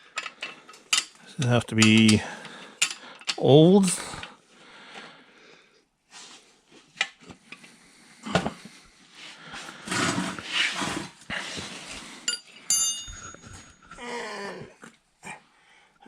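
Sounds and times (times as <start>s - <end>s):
tools and bolts clinking on metal: 0.0s - 4.3s, 12.2s - 13.8s
ringing metallic clinks: 12.3s - 13.8s.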